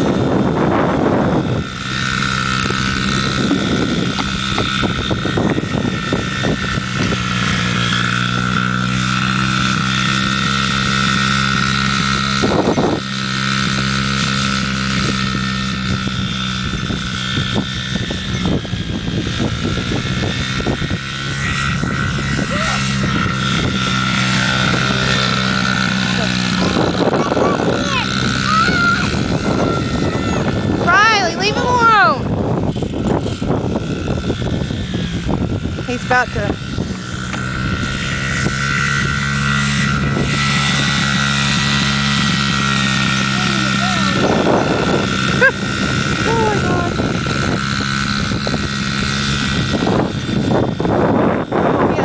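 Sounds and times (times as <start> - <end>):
dirt bike engine running: 0.0 - 52.0
gusts of noise: 15.0 - 52.0.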